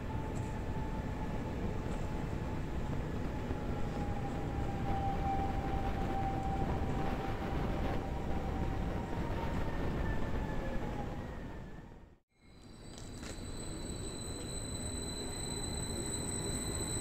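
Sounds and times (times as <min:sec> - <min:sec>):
train running with whine: 0:00.0 - 0:17.0.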